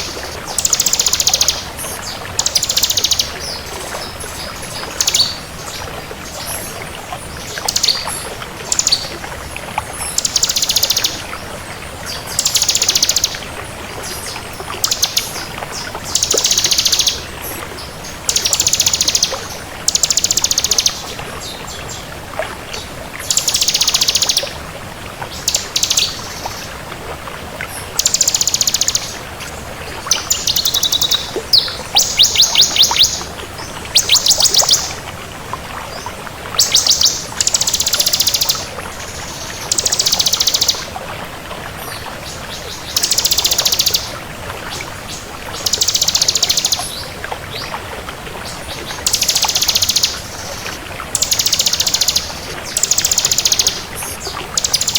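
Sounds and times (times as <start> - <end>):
bird singing rattling notes: 30.1 - 33.3, 33.9 - 35.0.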